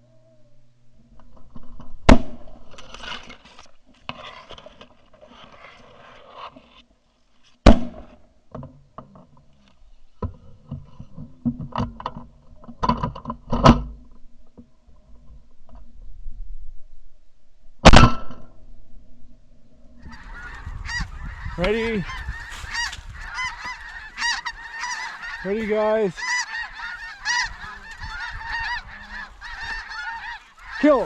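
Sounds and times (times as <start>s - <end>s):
geese calling: 20.0s - 31.0s.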